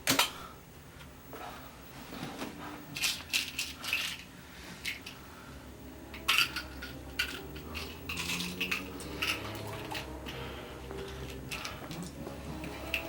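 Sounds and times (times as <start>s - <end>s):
small hard objects clinking: 2.9s - 5.2s, 6.1s - 10.4s, 11.1s - 13.0s.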